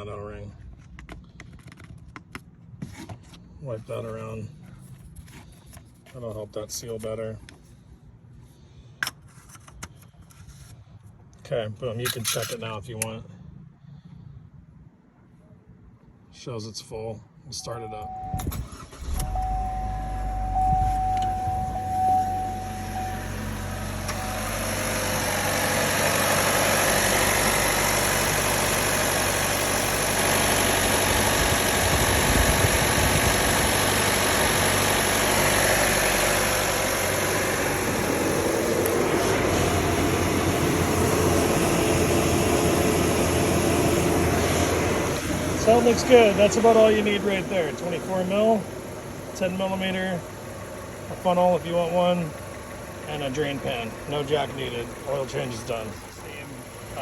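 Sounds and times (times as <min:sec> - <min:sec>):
car engine idling: 0:17.8 - 0:57.0
thin steady tone: 0:19.3 - 0:24.6.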